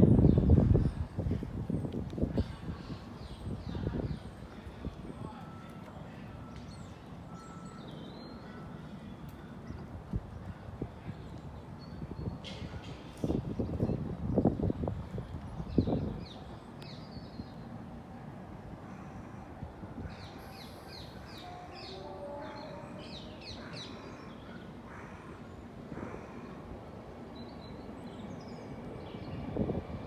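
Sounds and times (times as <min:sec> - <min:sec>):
birds chirping: 0:01.7 - 0:17.8.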